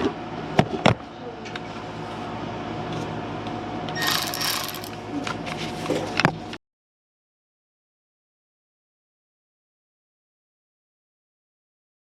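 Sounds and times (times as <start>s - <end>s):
steady mechanical hum: 0.0s - 6.6s.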